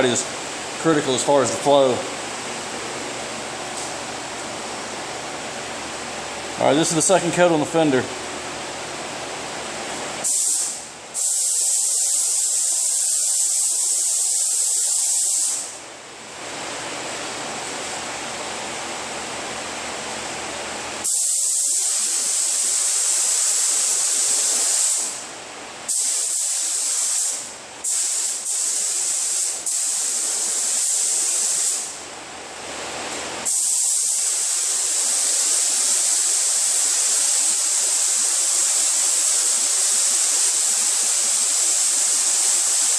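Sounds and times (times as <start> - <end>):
quiet steady air noise: 0.0 - 42.9
spray gun hissing: 10.2 - 15.7, 21.0 - 25.2, 25.9 - 32.0, 33.4 - 42.9.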